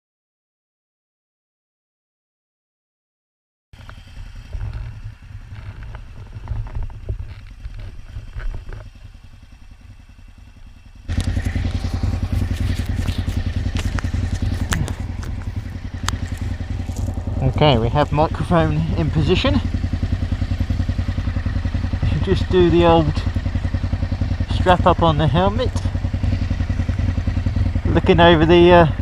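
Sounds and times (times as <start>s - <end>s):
motorcycle engine idling: 3.8s - 29.0s
handling clicks and scrapes: 11.1s - 17.6s.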